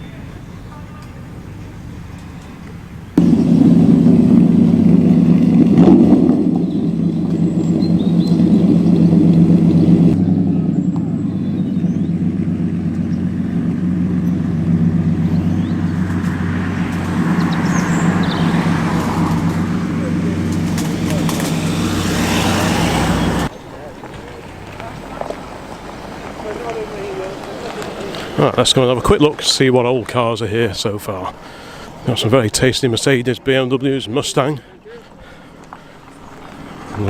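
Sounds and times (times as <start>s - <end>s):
car engine running: 3.2s - 23.5s.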